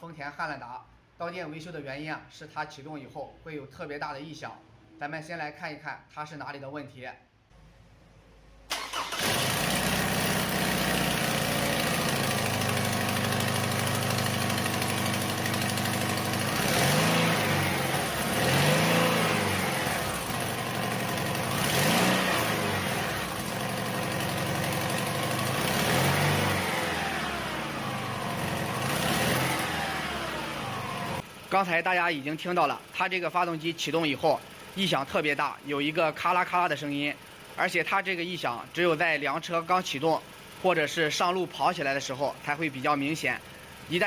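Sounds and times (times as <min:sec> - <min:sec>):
engine revving: 0:08.7 - 0:31.2.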